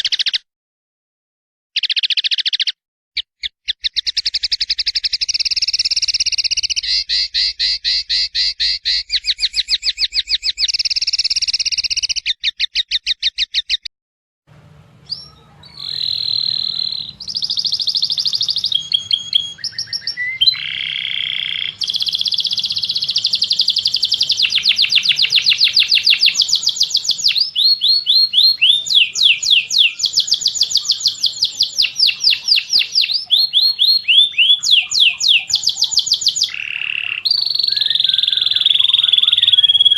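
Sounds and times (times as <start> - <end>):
songbird trills: 1.8 - 13.9, 15.0 - 39.9
whistled bird phrases: 1.8 - 13.9, 15.0 - 39.9
faint low hum: 14.5 - 28.7.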